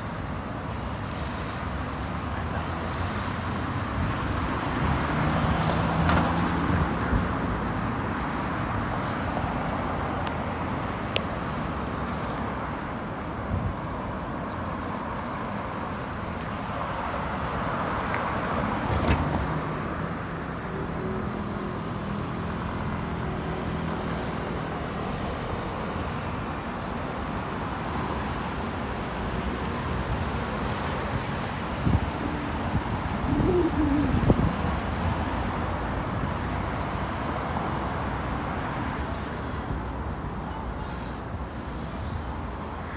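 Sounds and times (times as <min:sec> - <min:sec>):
road traffic passing: 0:00.0 - 0:42.9.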